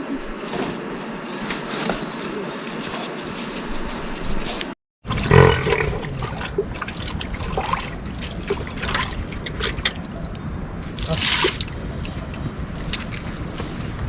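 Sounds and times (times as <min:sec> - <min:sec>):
water trickling and dripping: 0:05.1 - 0:13.6.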